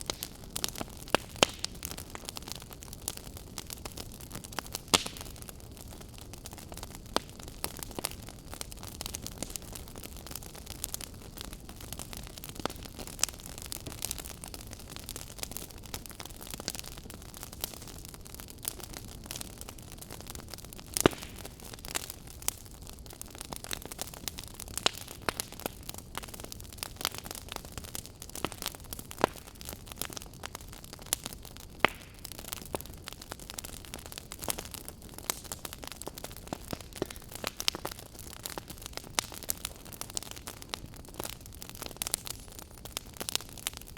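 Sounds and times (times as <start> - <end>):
crackles and pops of burning logs: 0.0 - 43.9.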